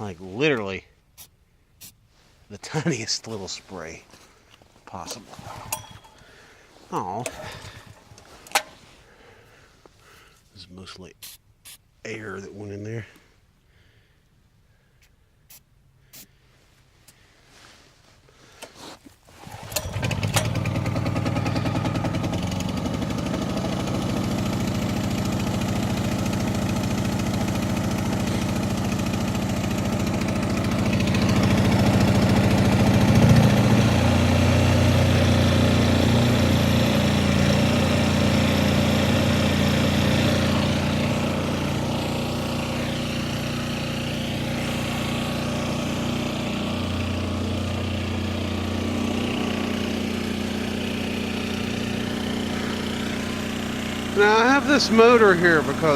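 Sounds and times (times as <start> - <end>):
generator engine running: 5.8 - 9.2, 19.4 - 55.9.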